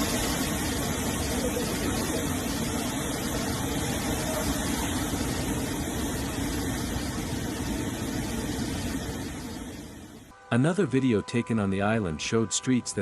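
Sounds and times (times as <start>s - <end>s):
hurricane wind: 0.0s - 10.3s
rushing storm water: 0.0s - 10.3s.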